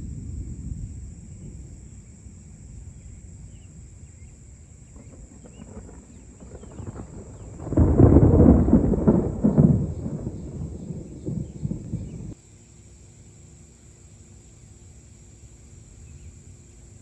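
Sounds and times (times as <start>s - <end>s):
thunder crash rolling: 0.0s - 12.4s.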